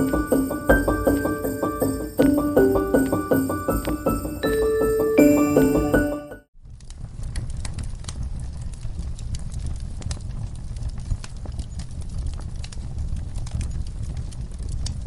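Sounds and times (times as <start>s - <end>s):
burning logs popping and crackling: 6.6s - 15.0s
low rumble of flames: 6.6s - 15.0s.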